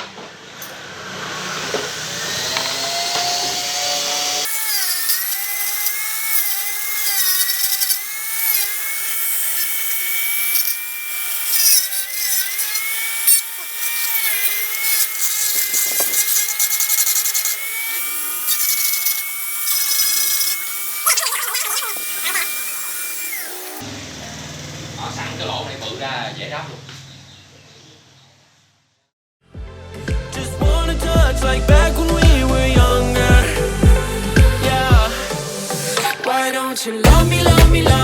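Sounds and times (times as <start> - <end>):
electric grinder grinding plastic: 0.6 - 24.8.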